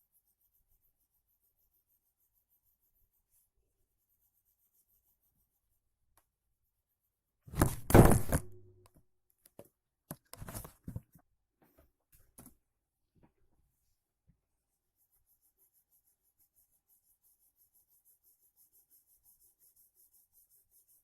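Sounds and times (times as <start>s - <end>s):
short scrapes and knocks: 7.5s - 8.8s.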